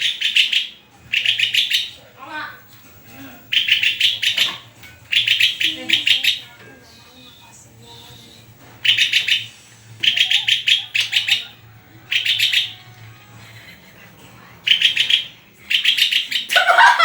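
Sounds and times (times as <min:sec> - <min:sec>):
songbird chirping: 0:00.0 - 0:17.0.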